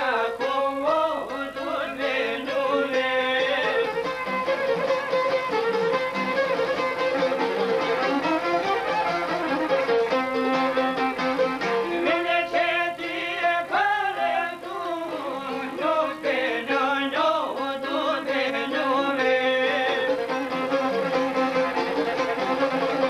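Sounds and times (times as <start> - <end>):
held accompanying notes: 0.0 - 23.0
violin playing ornamented melody: 2.5 - 12.1, 17.6 - 23.0.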